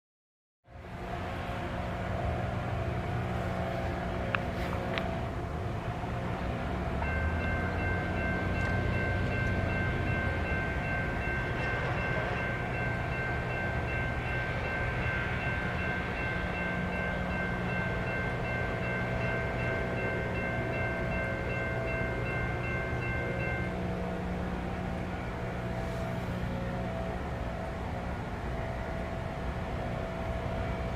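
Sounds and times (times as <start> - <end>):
diesel locomotive rumble: 0.7 - 30.9
locomotive air horn chord: 23.2 - 30.9.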